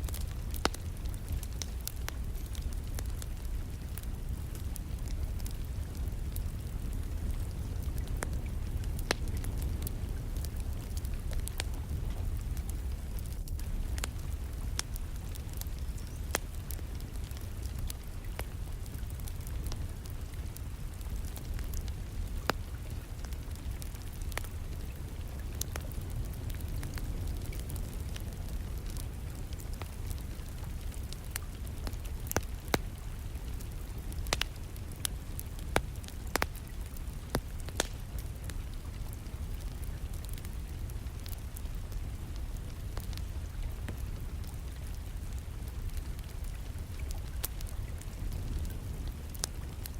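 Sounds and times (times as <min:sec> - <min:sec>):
distant rain patter: 0:00.0 - 0:49.9
wood fire crackling: 0:00.0 - 0:49.9.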